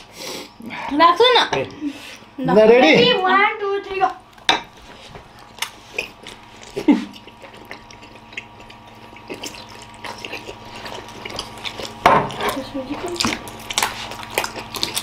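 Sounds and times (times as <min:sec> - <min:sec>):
wet chewing and mouth sounds: 0:04.3 - 0:15.0.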